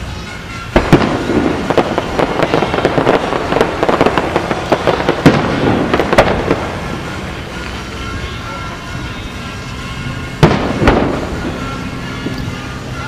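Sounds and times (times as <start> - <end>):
firework crackles: 0.0 - 13.0
firework shells bursting: 0.8 - 7.9, 10.3 - 12.8.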